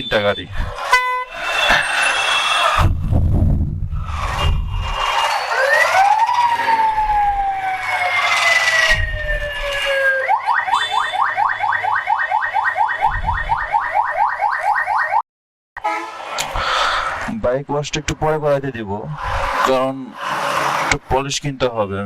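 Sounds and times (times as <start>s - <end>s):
electronic siren wailing and yelping: 0.8s - 2.9s, 4.0s - 15.2s.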